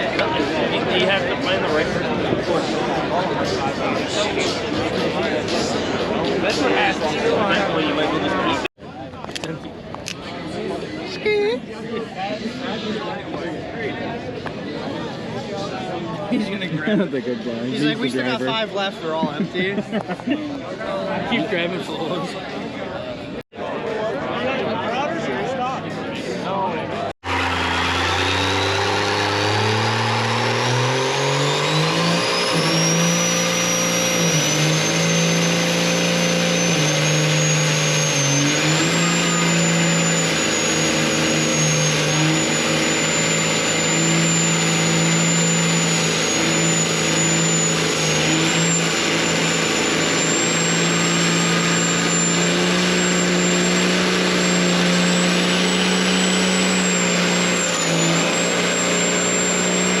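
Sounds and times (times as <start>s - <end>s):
truck engine revving: 27.2s - 60.0s
turbo whistle: 27.3s - 60.0s.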